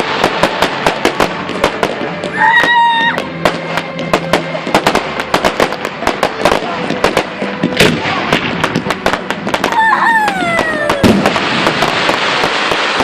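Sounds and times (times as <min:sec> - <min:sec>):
firework bangs and crackles: 0:00.0 - 0:13.0
firework whistle falling in pitch: 0:02.3 - 0:03.2, 0:09.6 - 0:11.3.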